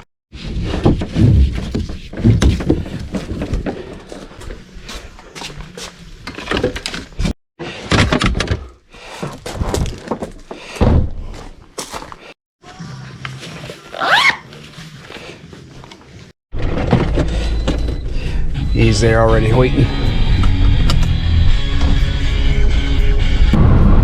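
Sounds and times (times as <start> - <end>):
dull thunks and knocks: 0.7 - 4.3, 7.9 - 11.4.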